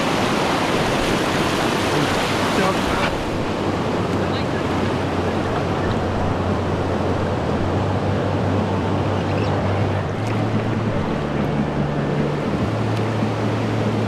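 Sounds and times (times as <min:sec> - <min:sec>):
river water rushing: 0:00.0 - 0:14.0
low hum: 0:03.2 - 0:14.0.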